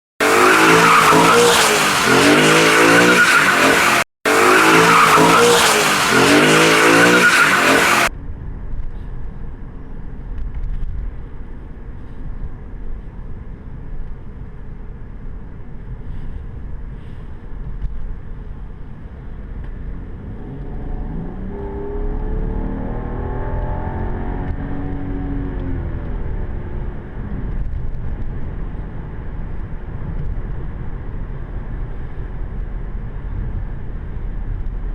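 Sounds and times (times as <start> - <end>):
car engine accelerating: 0.2 - 8.1, 19.4 - 31.8
car noise with tyre squeal: 0.2 - 8.1
low road rumble: 0.2 - 34.9.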